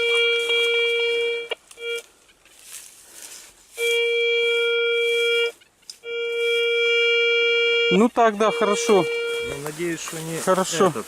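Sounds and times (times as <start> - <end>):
metal detector buzzing tone: 0.0 - 2.1, 3.8 - 9.7.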